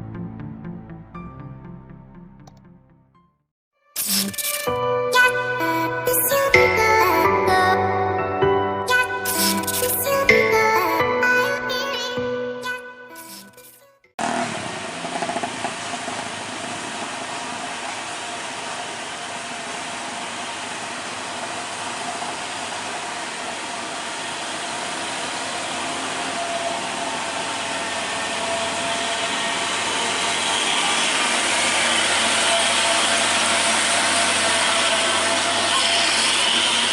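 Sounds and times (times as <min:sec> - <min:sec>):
road noise: 0:14.2 - 0:36.9
truck engine running: 0:14.2 - 0:36.9.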